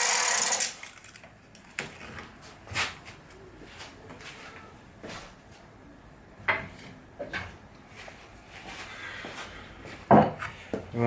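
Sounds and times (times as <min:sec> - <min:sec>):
wood and tools knocking: 0:10.1 - 0:10.4.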